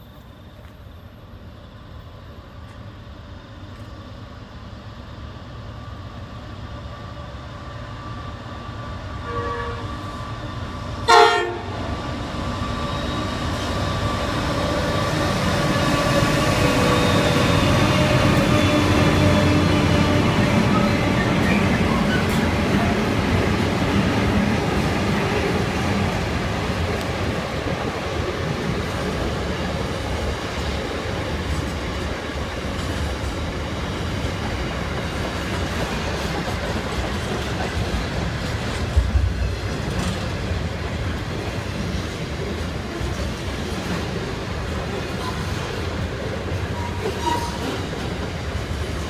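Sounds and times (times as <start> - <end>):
freight train wheels rumbling: 0.0 - 49.0
clickety-clack over rail joints: 13.4 - 49.0
sharp train clank: 38.4 - 41.2.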